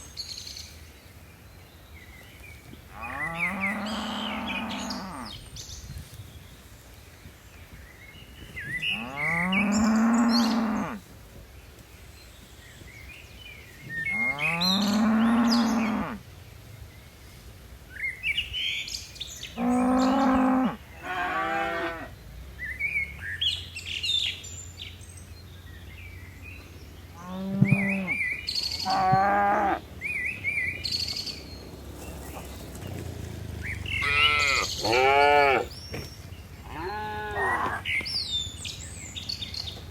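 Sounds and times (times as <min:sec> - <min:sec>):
cattle mooing: 0:03.0 - 0:05.3, 0:08.9 - 0:11.0, 0:14.1 - 0:16.2, 0:19.6 - 0:22.1, 0:27.2 - 0:28.2, 0:28.8 - 0:29.8, 0:34.0 - 0:35.7
small birds chirping: 0:21.9 - 0:39.9.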